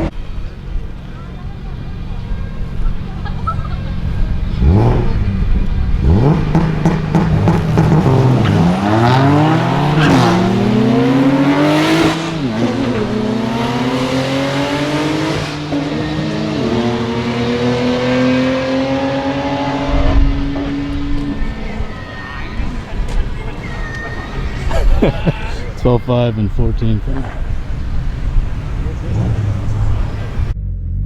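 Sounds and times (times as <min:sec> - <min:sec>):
car accelerating through gears: 0:00.0 - 0:31.0
car engine revving: 0:00.0 - 0:31.0.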